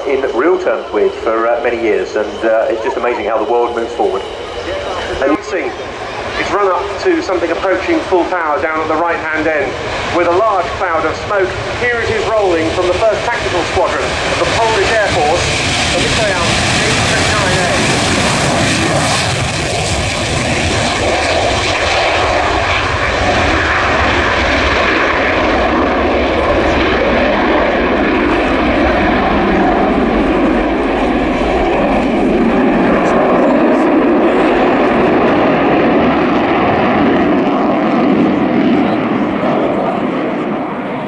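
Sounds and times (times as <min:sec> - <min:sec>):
fighter jet afterburner roar: 0:00.0 - 0:41.0.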